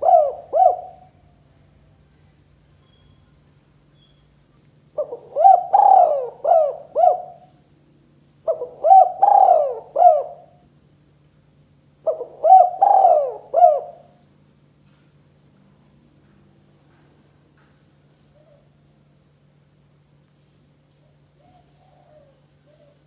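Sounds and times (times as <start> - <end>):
dove cooing: 0.0 - 1.3, 5.0 - 7.6, 8.4 - 10.6, 12.0 - 14.2, 21.4 - 23.0.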